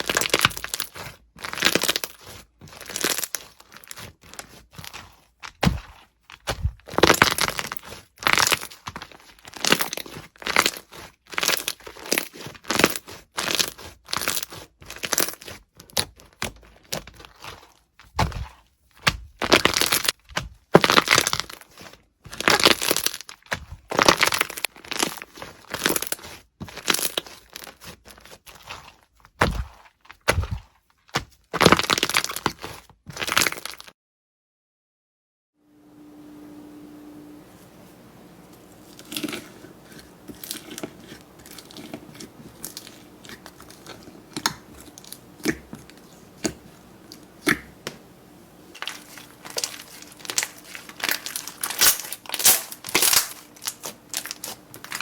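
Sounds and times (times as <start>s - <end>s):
crunchy slime squeezed by hand: 0.0s - 18.6s, 19.3s - 33.9s, 48.7s - 55.0s.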